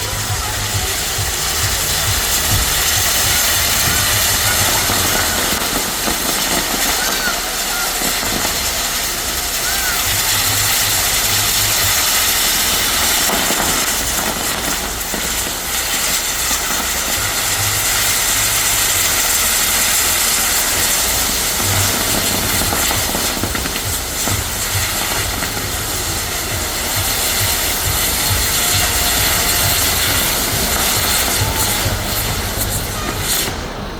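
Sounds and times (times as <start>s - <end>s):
ground fireworks hissing: 0.0s - 33.9s.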